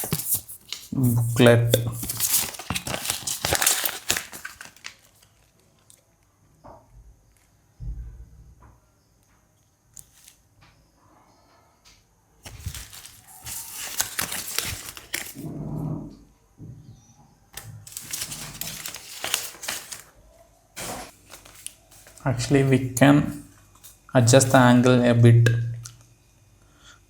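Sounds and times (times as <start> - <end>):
packaging crinkling and rustling: 0.0 - 6.0, 12.4 - 15.4, 17.8 - 20.2, 20.8 - 24.7.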